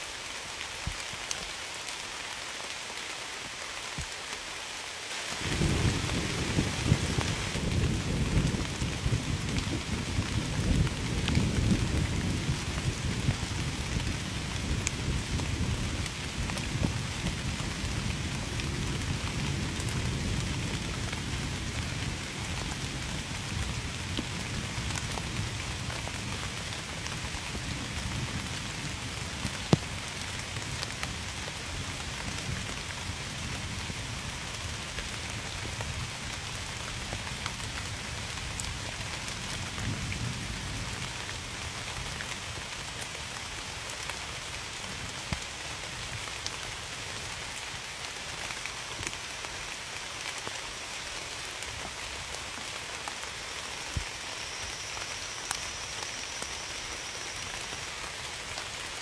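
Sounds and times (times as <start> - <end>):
heavy rain pattering: 0.0 - 59.0
sharp drip-like tick: 55.4 - 55.6.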